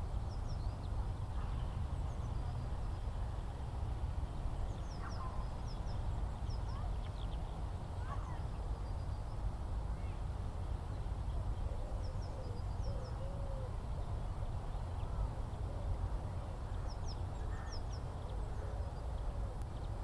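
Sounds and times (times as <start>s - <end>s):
small birds chirping: 4.4s - 10.2s.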